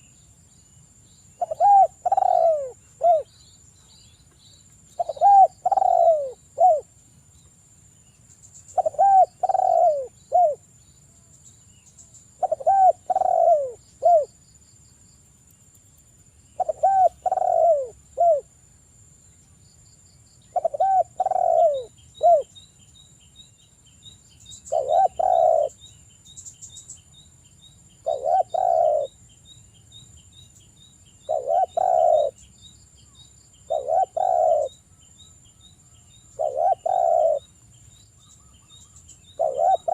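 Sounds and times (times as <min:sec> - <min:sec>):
dove cooing: 0:01.4 - 0:03.3, 0:05.0 - 0:06.9, 0:08.7 - 0:10.6, 0:12.4 - 0:14.3, 0:16.6 - 0:18.5, 0:20.5 - 0:22.5, 0:24.7 - 0:25.8, 0:28.0 - 0:29.1, 0:31.3 - 0:32.4, 0:33.7 - 0:34.8, 0:36.4 - 0:37.5, 0:39.3 - 0:39.9.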